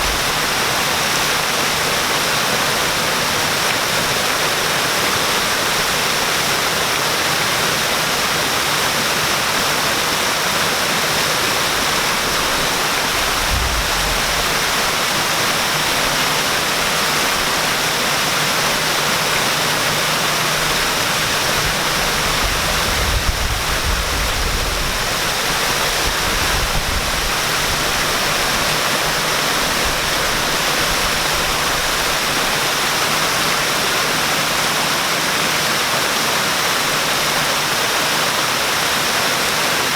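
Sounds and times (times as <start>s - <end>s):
waterfall pouring: 0.0s - 39.9s
low rumbles: 13.1s - 15.0s.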